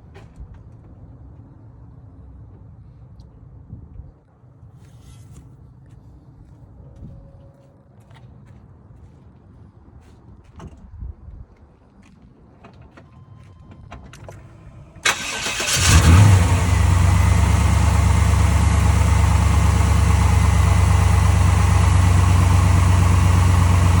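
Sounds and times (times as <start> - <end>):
car engine starting and idling: 14.3 - 24.0.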